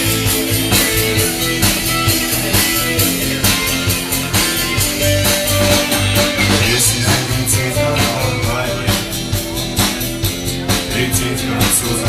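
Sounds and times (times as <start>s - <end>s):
bass guitar: 0.0s - 12.0s
drum kit beat: 0.0s - 12.0s
electric guitar: 0.0s - 12.0s.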